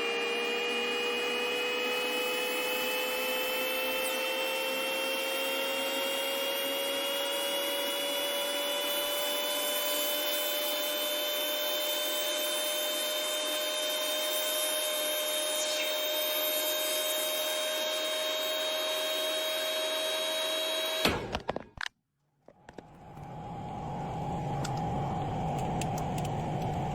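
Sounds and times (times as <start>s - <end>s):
microwave oven humming: 22.8s - 26.9s.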